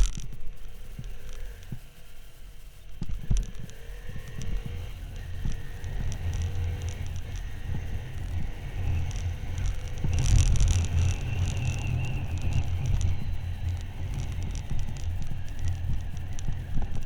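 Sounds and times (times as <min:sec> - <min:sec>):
motorcycle engine rumbling: 0:04.4 - 0:17.0.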